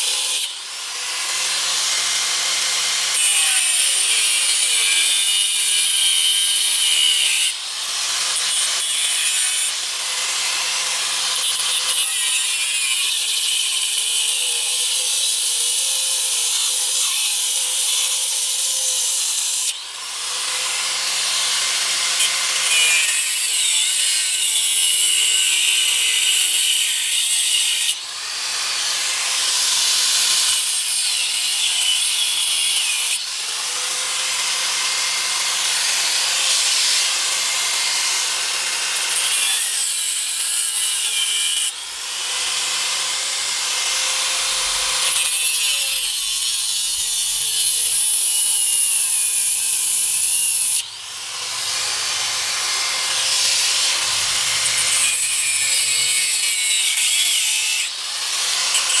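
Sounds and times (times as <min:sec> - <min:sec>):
abrasive sanding of metal: 0:44.4 - 0:57.9.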